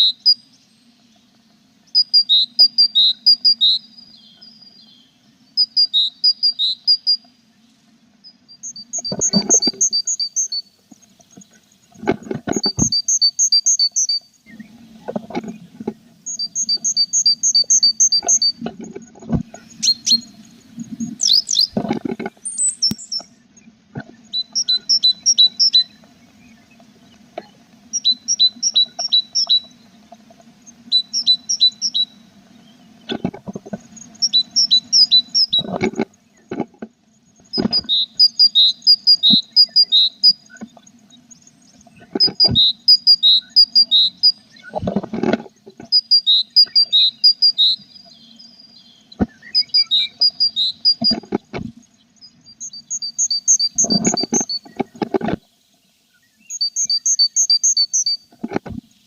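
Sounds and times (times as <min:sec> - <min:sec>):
steady low hum: 0:00.0 - 0:46.1
birds chirping: 0:00.0 - 0:59.0
dull knocks and scrapes: 0:11.3 - 0:13.0, 0:15.0 - 0:16.1, 0:18.2 - 0:19.7, 0:20.8 - 0:22.5, 0:44.7 - 0:46.0, 0:53.8 - 0:55.4.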